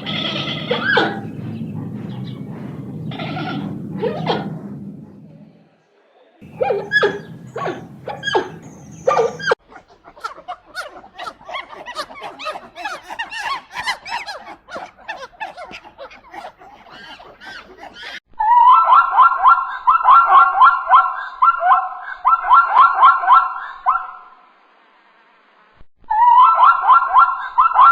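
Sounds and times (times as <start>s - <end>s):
loud pitched animal calls: 0.0s - 4.5s, 6.4s - 19.0s
fast trilling call: 6.4s - 9.6s
rapid chirping and chattering: 6.4s - 18.2s.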